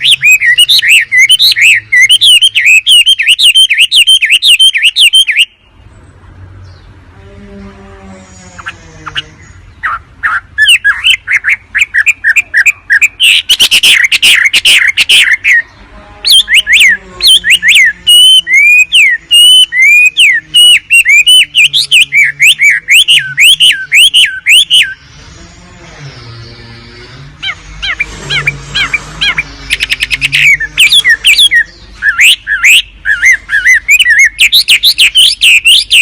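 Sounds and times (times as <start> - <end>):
loud swooping whistled bird notes: 0.0 - 5.6, 16.3 - 25.4, 26.0 - 36.0
bird chirps and chatter: 0.0 - 6.0, 8.2 - 36.0.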